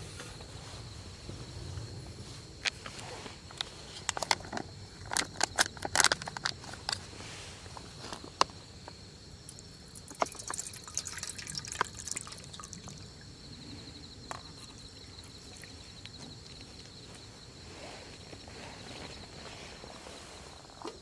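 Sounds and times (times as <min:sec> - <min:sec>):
insects chirping: 0:00.0 - 0:21.0
water dripping and trickling: 0:09.4 - 0:13.4, 0:14.3 - 0:16.9.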